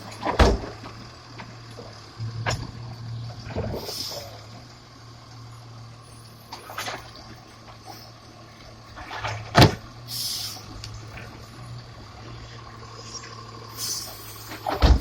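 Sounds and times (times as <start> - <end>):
truck engine running: 0.0 - 15.0
loud bang: 2.2 - 4.2.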